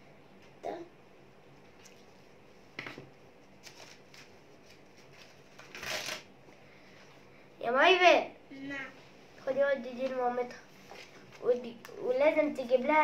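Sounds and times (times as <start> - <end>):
paper sheet tearing: 3.6 - 6.3.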